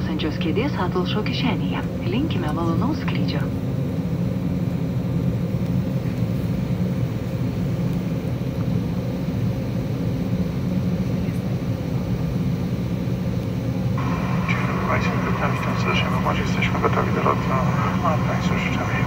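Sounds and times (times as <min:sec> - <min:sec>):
airliner cabin low rumble: 0:00.0 - 0:19.0
faint cabin hum: 0:00.0 - 0:19.0.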